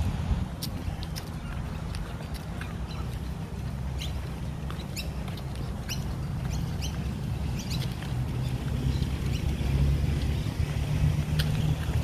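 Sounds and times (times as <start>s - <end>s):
wind rumble on microphone: 0.0s - 12.0s
high bird chirps: 5.8s - 9.7s.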